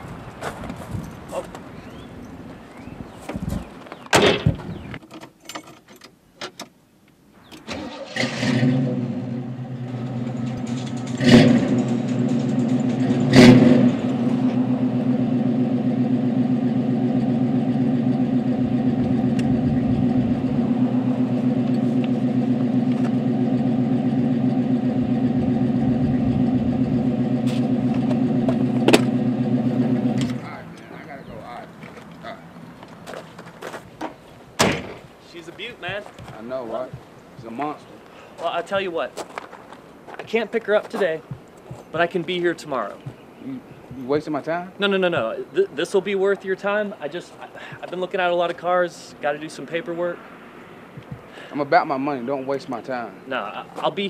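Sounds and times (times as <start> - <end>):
car engine cranking and idling: 7.6 - 34.2
car door shutting: 27.4 - 29.2, 34.0 - 35.0
sharp knocks: 27.5 - 29.2, 34.0 - 35.0.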